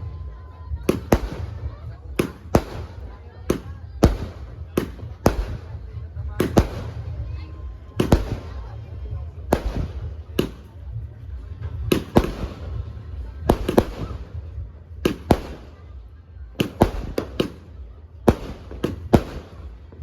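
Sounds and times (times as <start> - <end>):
fireworks bangs: 0.0 - 20.0
steady low rumble: 0.0 - 20.0.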